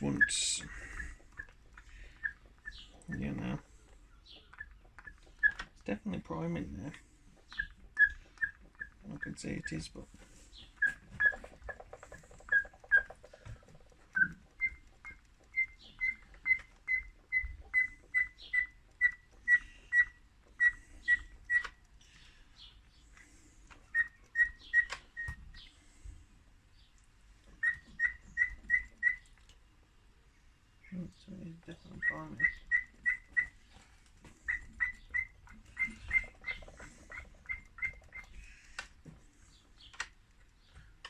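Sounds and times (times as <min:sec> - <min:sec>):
primer bulb squeaking: 0:00.0 - 0:01.6, 0:07.5 - 0:09.8, 0:10.8 - 0:21.9, 0:23.9 - 0:25.6, 0:27.6 - 0:29.2, 0:31.7 - 0:33.7, 0:34.4 - 0:38.7.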